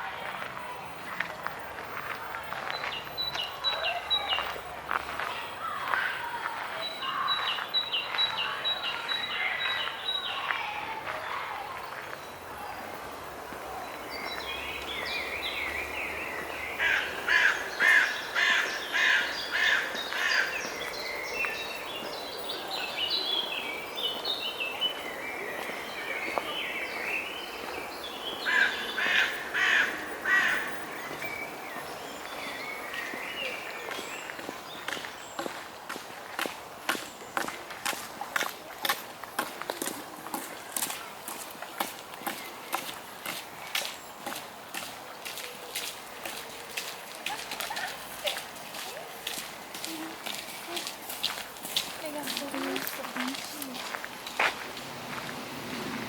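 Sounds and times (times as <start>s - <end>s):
outdoor background noise: 0.0s - 56.0s
crow-like bird calls: 16.8s - 20.5s, 28.4s - 30.7s.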